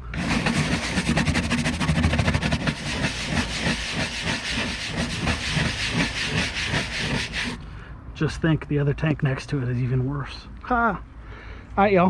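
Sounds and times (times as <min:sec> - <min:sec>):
stiff brush scrubbing metal tank: 0:00.0 - 0:07.6.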